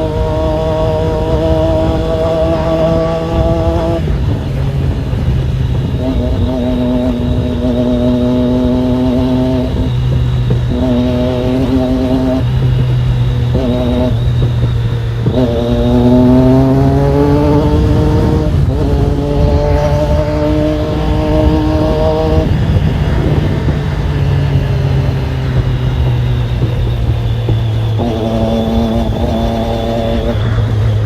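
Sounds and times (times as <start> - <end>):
motorcycle engine idling and revving: 0.0 - 31.0.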